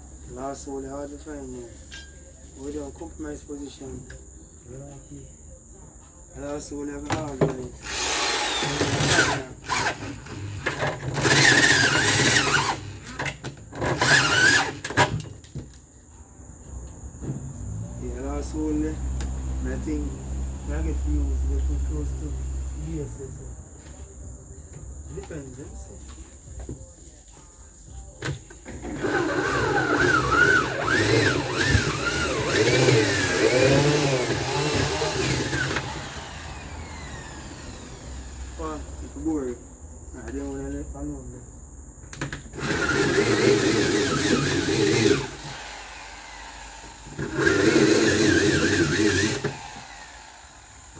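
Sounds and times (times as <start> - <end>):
power drill whining: 7.8 - 15.2, 28.6 - 39.2, 42.5 - 50.9.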